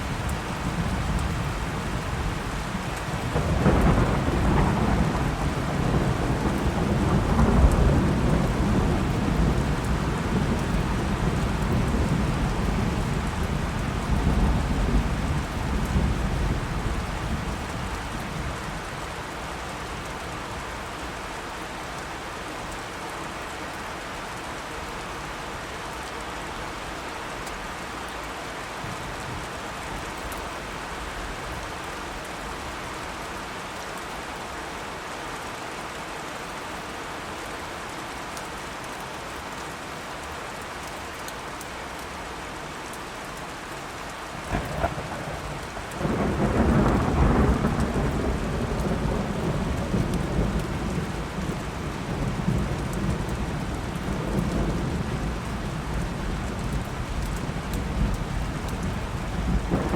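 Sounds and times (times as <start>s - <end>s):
steady rain falling: 0.0s - 59.9s
thunder crack and rumble: 0.2s - 18.7s, 44.4s - 59.9s.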